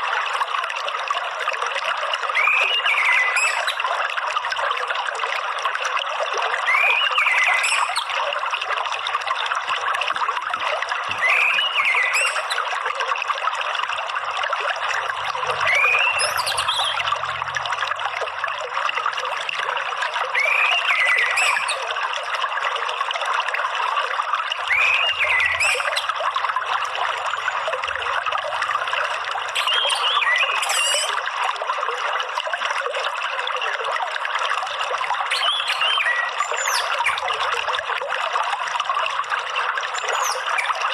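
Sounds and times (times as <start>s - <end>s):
running water trickling: 0.0s - 40.9s
thrush whistled call: 2.4s - 3.8s, 11.2s - 12.6s, 15.5s - 17.2s, 20.4s - 21.8s, 24.7s - 26.1s, 29.6s - 31.2s, 35.3s - 37.2s.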